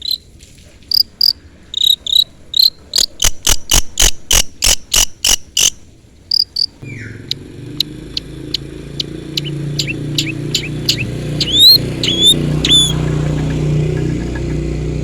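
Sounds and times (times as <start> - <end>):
sharp high bird chirps: 0.9 - 3.5, 4.6 - 14.8
shrike harsh calls: 6.3 - 15.0.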